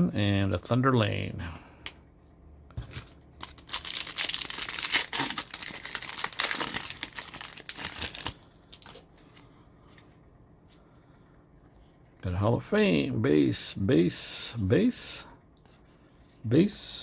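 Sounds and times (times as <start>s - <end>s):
card pack wrapper tearing: 2.9s - 9.4s.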